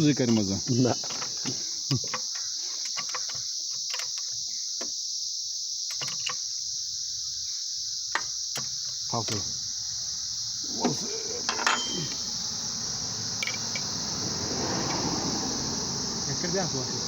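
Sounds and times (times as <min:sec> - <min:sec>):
crickets chirring: 0:00.0 - 0:17.0
light clicks and knocks: 0:00.2 - 0:04.9.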